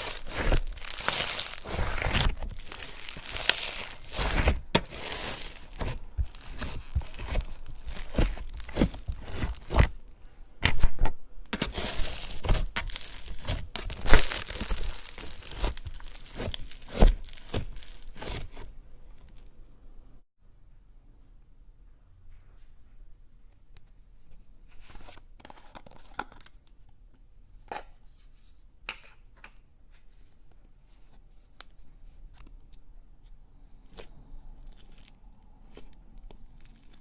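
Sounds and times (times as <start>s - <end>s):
slime popping: 0.0s - 10.0s, 11.5s - 18.6s
slime crackling and tearing: 0.0s - 10.1s, 11.5s - 19.5s, 33.8s - 37.0s.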